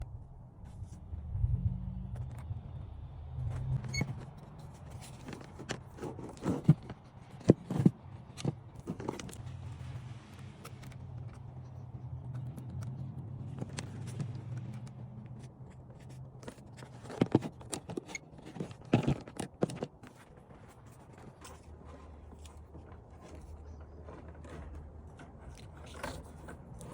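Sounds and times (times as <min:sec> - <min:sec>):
steady low hum: 0:00.0 - 0:04.0
objects being handled: 0:03.5 - 0:11.5.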